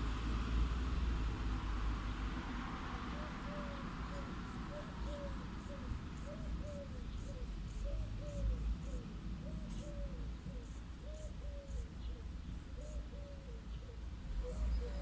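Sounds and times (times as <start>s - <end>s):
distant traffic rumble: 0.0s - 15.0s
dove cooing: 3.1s - 12.2s, 12.8s - 15.0s
insects chirping: 3.9s - 13.2s.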